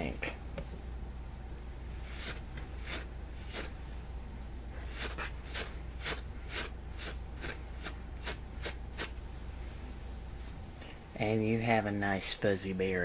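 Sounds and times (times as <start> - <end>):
low steady hum: 0.0 - 13.0
wire brush strokes on plush fabric: 2.0 - 3.9, 4.8 - 9.2.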